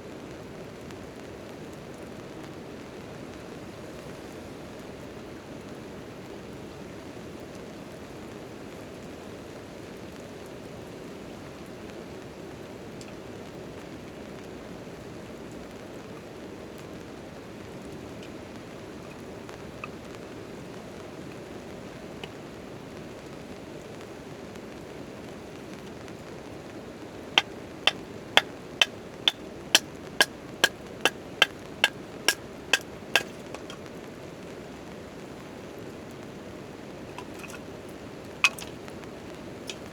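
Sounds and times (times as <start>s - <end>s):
rain on a tent tarp: 0.0s - 27.2s.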